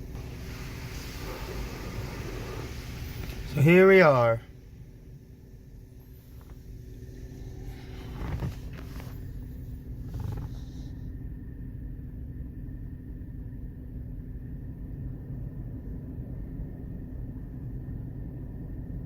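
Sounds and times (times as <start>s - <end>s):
hissing rush of water: 0.0s - 5.0s
car wash machinery rumbling: 0.0s - 19.0s.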